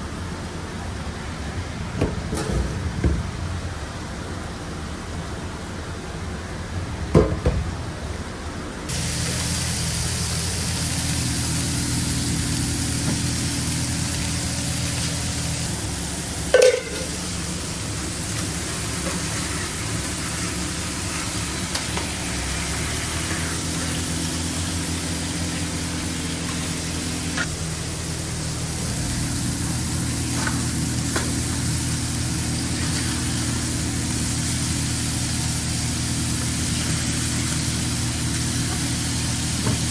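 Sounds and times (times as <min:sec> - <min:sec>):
machine humming: 0:08.9 - 0:39.9
patties sizzling on a griddle: 0:08.9 - 0:39.9.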